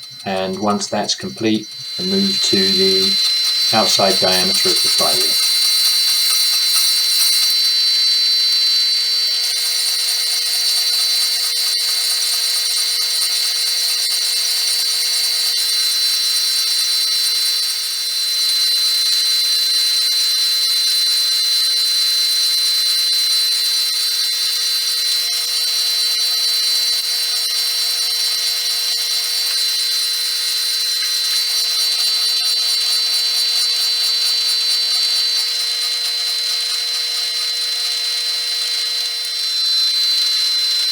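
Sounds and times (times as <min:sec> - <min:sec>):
metal lathe whining: 0:00.0 - 0:07.6.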